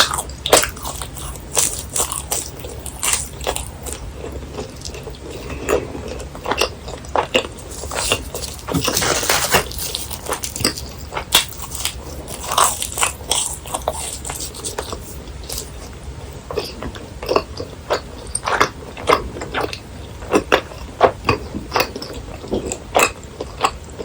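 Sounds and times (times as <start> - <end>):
crunchy chewing of snacks: 0.0 - 24.0.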